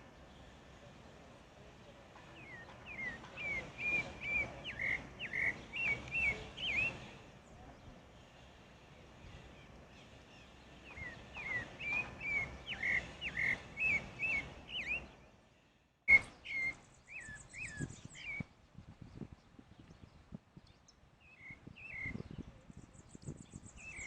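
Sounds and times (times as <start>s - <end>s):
thrush singing whistled notes: 2.3s - 7.4s, 9.5s - 15.3s, 16.1s - 18.6s, 21.2s - 22.4s, 23.2s - 24.0s.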